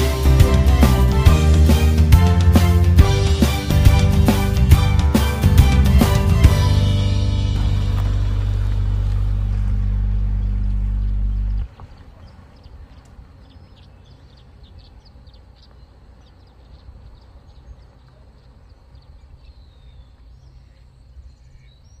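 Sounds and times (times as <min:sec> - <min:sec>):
background music: 0:00.0 - 0:11.6
low steady rumble: 0:00.0 - 0:21.5.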